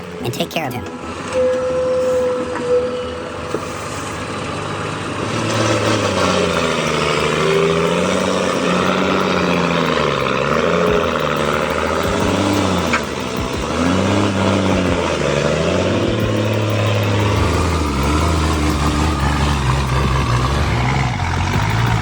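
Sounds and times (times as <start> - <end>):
large engine running: 4.0 - 22.0.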